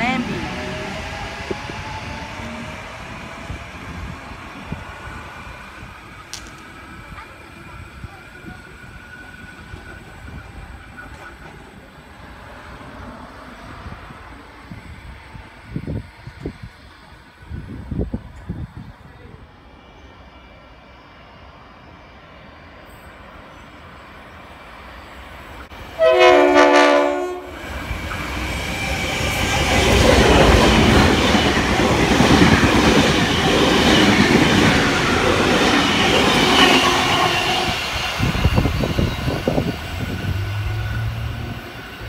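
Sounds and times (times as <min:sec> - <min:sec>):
train passing: 0:00.0 - 0:42.0
train horn blast: 0:26.0 - 0:27.6.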